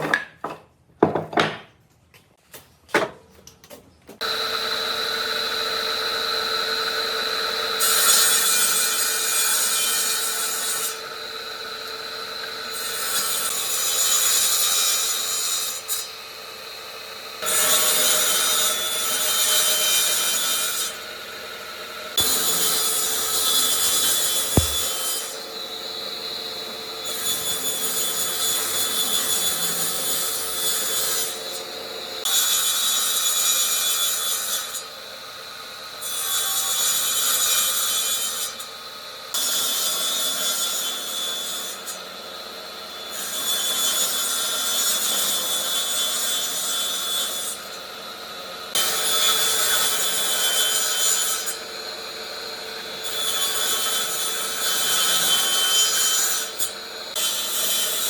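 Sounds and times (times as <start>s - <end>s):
power tool abrading wood: 22.1s - 25.4s.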